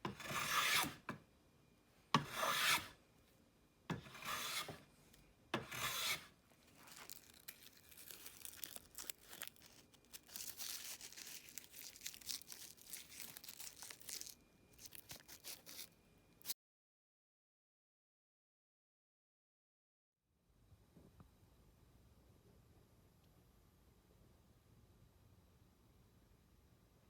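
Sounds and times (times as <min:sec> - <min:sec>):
hand plane cutting wood: 0:00.0 - 0:01.0, 0:02.2 - 0:03.0, 0:03.9 - 0:04.8, 0:05.6 - 0:06.3
scratchy crinkly rustling: 0:06.6 - 0:16.5.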